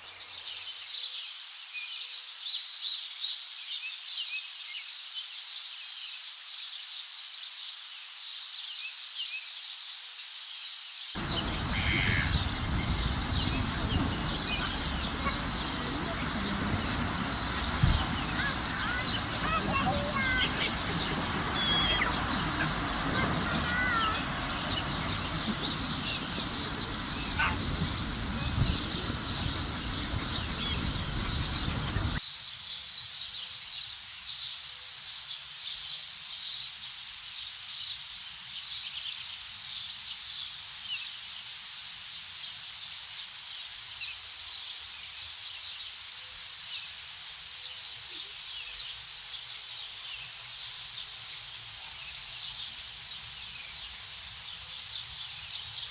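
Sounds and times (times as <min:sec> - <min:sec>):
small birds chirping: 0:11.2 - 0:32.2
steady rushing noise: 0:11.2 - 0:32.2.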